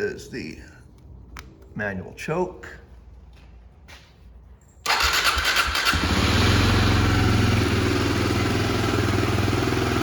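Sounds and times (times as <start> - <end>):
motorcycle engine cranking and idling: 4.4 - 10.0.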